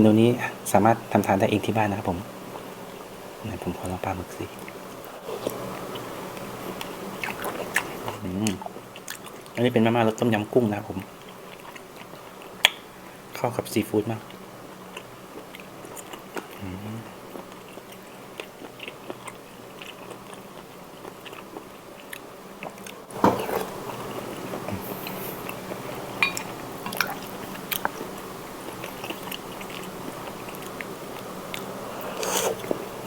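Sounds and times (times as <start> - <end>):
background hiss: 0.0 - 33.0
close chewing and biting: 5.4 - 9.6, 11.0 - 12.8, 14.3 - 25.9, 26.9 - 32.8.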